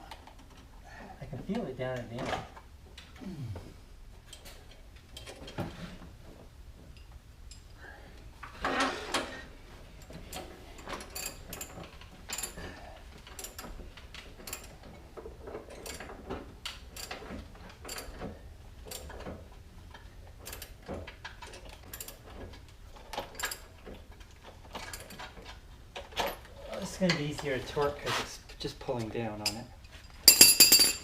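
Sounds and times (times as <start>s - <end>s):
metal tool clinks: 30.2s - 31.0s.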